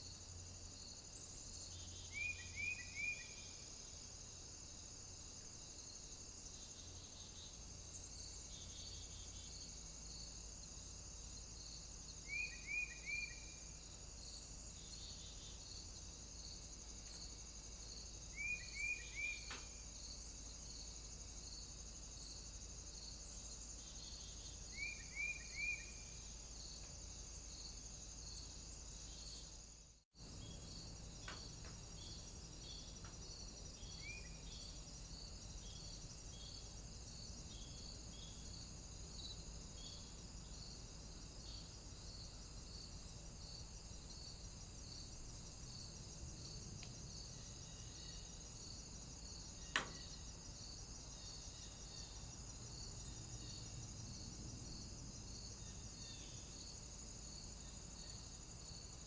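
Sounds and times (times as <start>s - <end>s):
steady high pulsing hiss: 0.0s - 59.0s
small bird calling: 18.3s - 19.8s.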